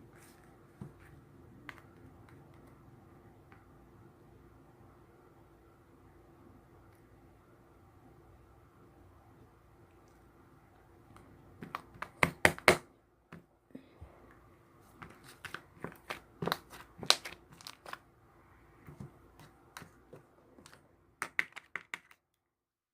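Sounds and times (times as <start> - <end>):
faint steady hum: 0.0 - 22.7
material crinkling by hand: 14.8 - 18.1.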